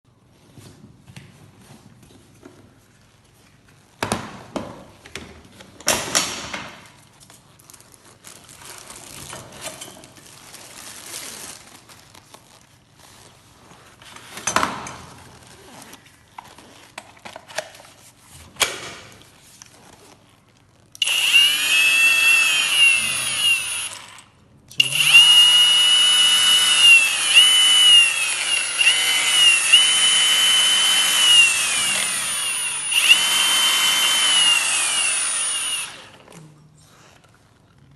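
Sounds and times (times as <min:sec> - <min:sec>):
angle grinder motor whining: 0:21.0 - 0:24.2, 0:24.8 - 0:36.2.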